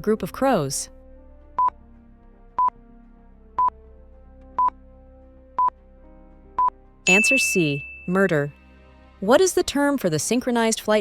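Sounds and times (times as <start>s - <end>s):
quiet background music: 0.0s - 11.0s
countdown timer beeping: 1.6s - 1.8s, 5.6s - 5.8s, 6.6s - 8.6s.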